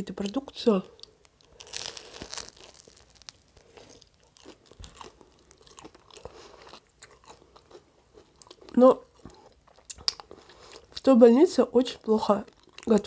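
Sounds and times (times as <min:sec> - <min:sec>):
crunchy chewing: 0:00.2 - 0:11.1, 0:12.4 - 0:13.0
bite into crusty bread: 0:01.0 - 0:11.0.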